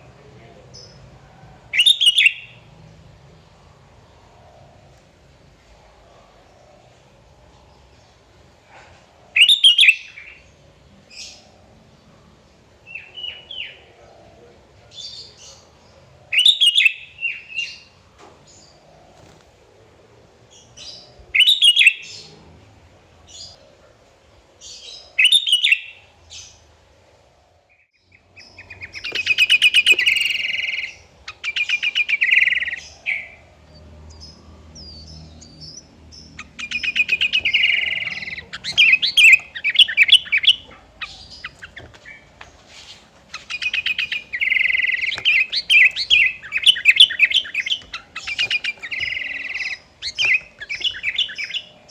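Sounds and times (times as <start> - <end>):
bulbul singing: 1.7 - 2.7, 9.4 - 10.5, 28.1 - 42.5, 43.3 - 51.9.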